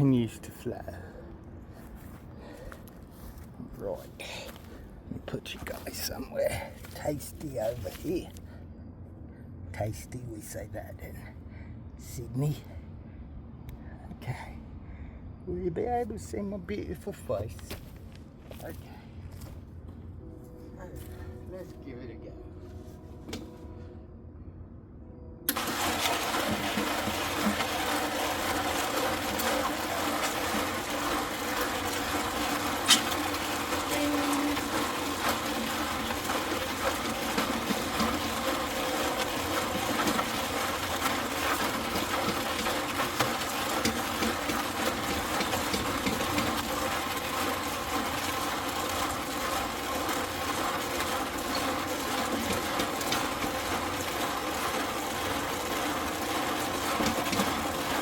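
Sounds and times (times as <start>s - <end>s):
concrete mixer running: 0.0s - 8.7s, 25.5s - 58.0s.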